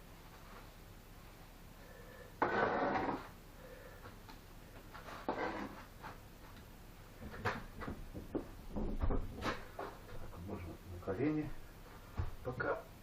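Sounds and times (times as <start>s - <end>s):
trowel scraping mortar: 2.4s - 3.4s, 5.1s - 5.9s.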